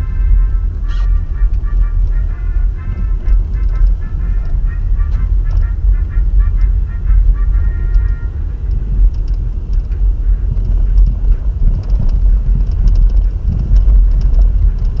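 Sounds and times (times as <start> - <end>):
wind buffeting microphone: 0.0 - 15.0
faint ticks: 7.9 - 15.0.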